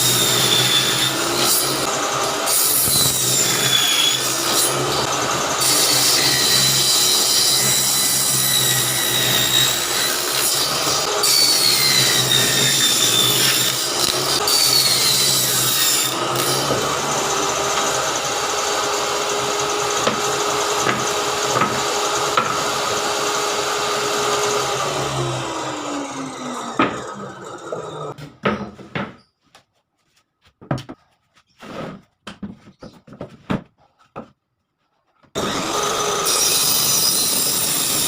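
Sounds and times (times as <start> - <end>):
power tool grinding wood: 0.0 - 28.2, 35.3 - 38.0.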